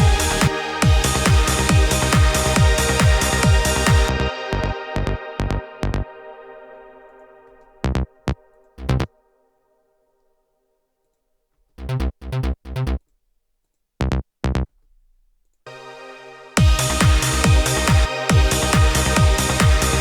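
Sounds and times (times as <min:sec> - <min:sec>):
held synth chord: 0:00.0 - 0:08.6, 0:15.7 - 0:20.0.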